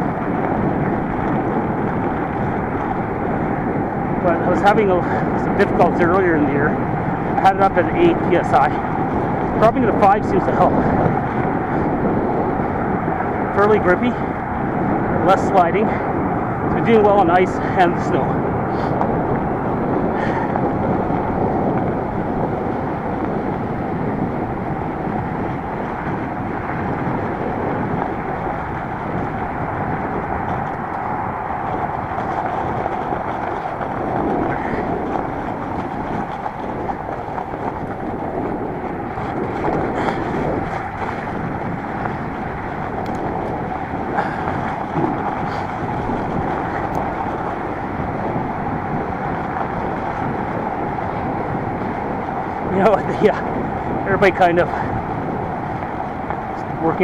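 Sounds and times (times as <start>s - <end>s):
bike tires rolling on snow: 0.0s - 57.0s
wind on microphone: 0.0s - 57.0s.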